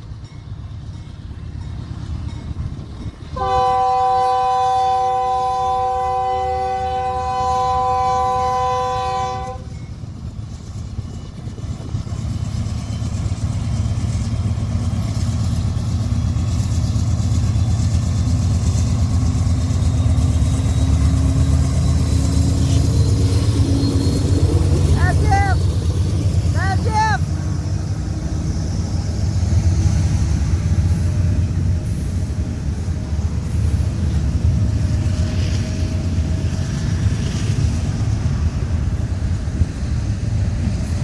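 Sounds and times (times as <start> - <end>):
train rumbling by: 0.0 - 41.0
locomotive air horn: 3.4 - 9.7.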